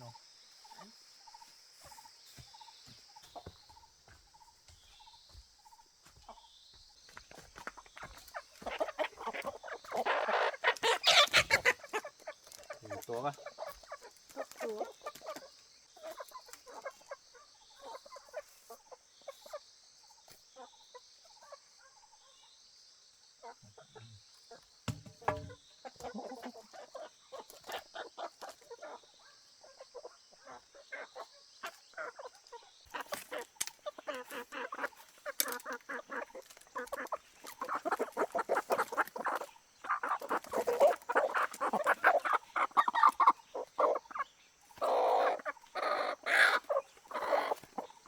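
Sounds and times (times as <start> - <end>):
chicken calling softly: 23.4 - 48.0
soft knocks: 24.8 - 25.6.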